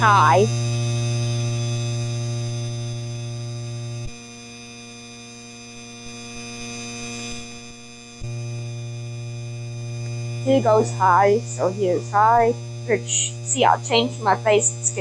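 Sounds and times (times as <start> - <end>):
ceiling fan motor humming: 0.0 - 4.8, 8.0 - 15.0.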